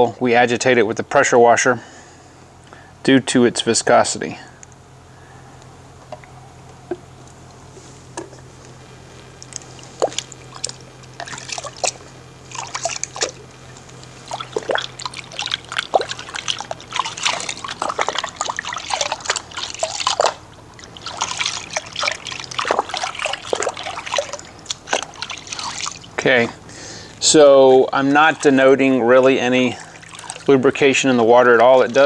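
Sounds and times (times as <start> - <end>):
hand splashing in soapy water: 14.2 - 26.1.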